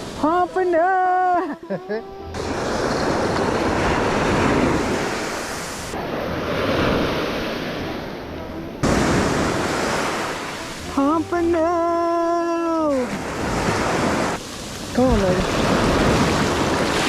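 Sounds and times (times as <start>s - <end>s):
surf breaking on beach: 2.3s - 8.0s, 8.8s - 11.3s, 12.0s - 17.0s.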